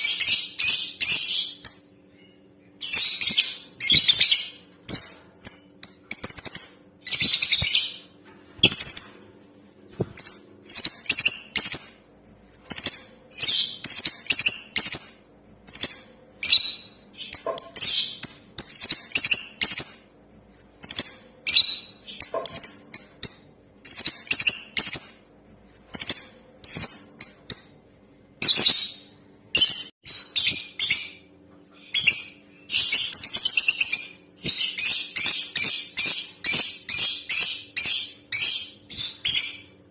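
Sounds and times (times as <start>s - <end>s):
lovebird chirping: 0.0s - 9.4s, 10.1s - 20.2s, 20.8s - 39.8s.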